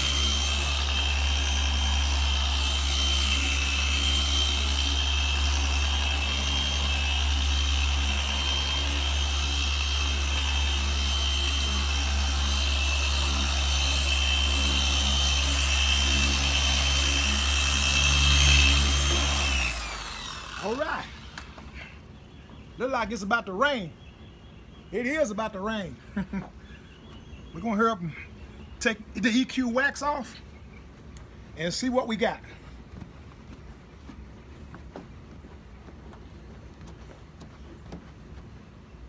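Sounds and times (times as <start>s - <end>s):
electric car polisher humming: 0.0s - 21.8s.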